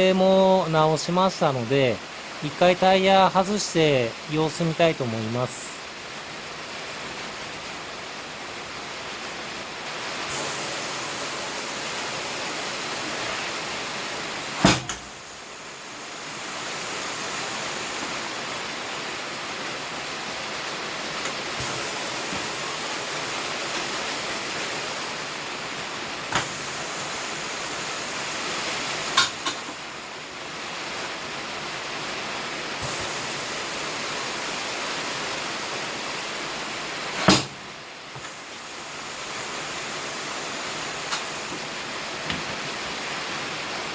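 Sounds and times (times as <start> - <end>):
compressed air hissing: 10.2 - 18.2, 21.6 - 25.5, 26.3 - 29.8, 32.8 - 37.6, 38.2 - 41.7.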